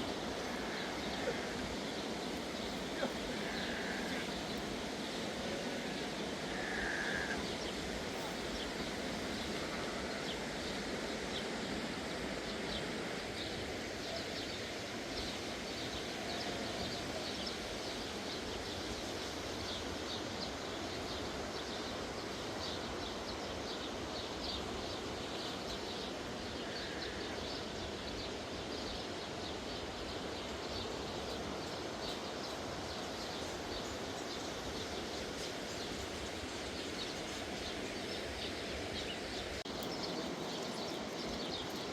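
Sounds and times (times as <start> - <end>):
small birds chirping: 0.0 - 10.8, 30.3 - 41.9.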